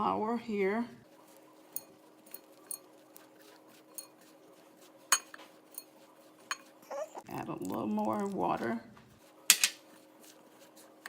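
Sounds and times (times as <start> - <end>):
clinks against a mixing bowl: 5.1 - 5.9.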